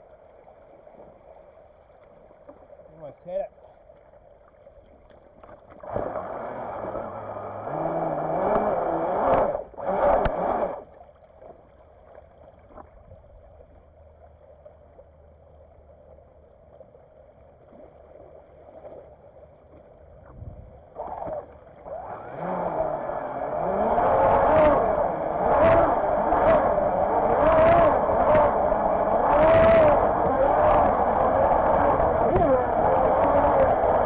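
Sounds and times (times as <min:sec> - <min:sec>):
rush of water: 0:00.0 - 0:13.3, 0:20.4 - 0:34.0
model boat motor: 0:05.4 - 0:11.7, 0:20.7 - 0:34.0.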